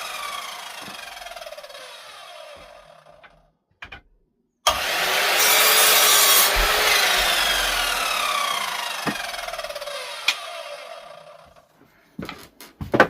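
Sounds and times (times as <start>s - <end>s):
power saw cutting wood: 0.0s - 3.4s, 4.7s - 11.7s.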